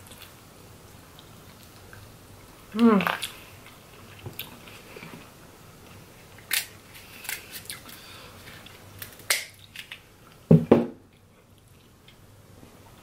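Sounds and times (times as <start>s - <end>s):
person chewing food: 2.9s - 10.4s.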